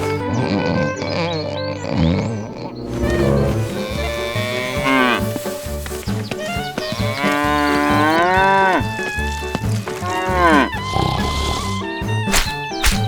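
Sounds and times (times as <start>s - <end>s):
cow mooing: 2.8s - 5.4s, 7.0s - 12.0s.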